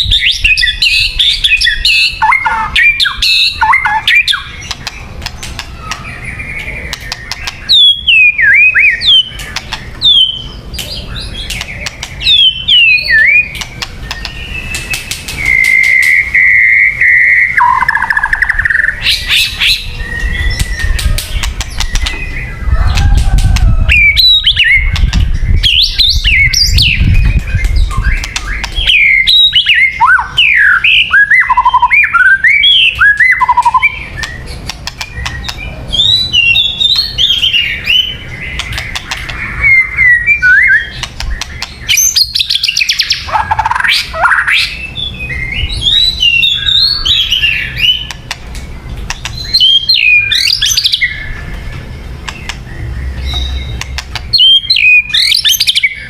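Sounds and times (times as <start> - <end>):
bird singing whistled phrases: 0.0 - 4.8, 5.7 - 9.4, 10.0 - 22.8, 24.0 - 34.4, 35.1 - 38.2, 39.5 - 48.1, 49.4 - 51.4, 52.8 - 56.0
sharp clicks: 4.6 - 6.1, 6.9 - 7.7, 9.4 - 10.0, 10.8 - 12.3, 13.5 - 16.2, 20.5 - 22.2, 27.3 - 29.0, 34.2 - 35.6, 38.6 - 39.4, 40.9 - 41.8, 48.0 - 49.4, 52.2 - 52.7, 53.3 - 54.3.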